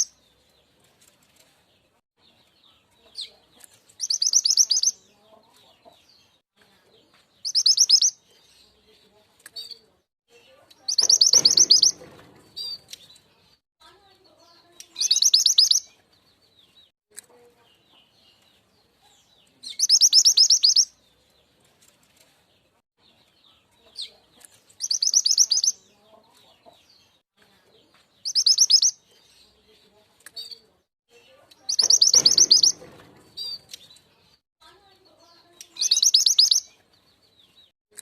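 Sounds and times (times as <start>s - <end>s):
high rattling bird trills: 10.9s - 12.8s, 31.6s - 33.8s, 35.8s - 36.6s.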